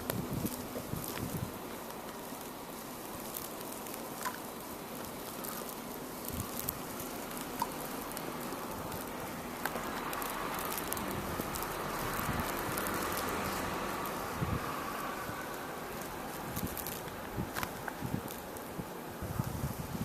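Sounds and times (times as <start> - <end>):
wind hissing in a snowstorm: 0.0 - 20.0
faint ticks: 3.2 - 14.3.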